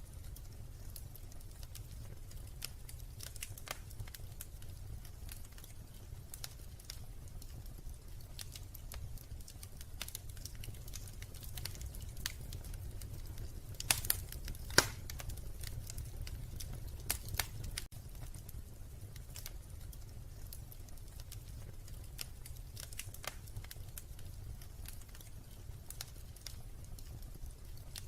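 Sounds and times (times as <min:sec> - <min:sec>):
wood fire crackling: 0:00.0 - 0:28.0
louder fire pops: 0:00.2 - 0:28.0.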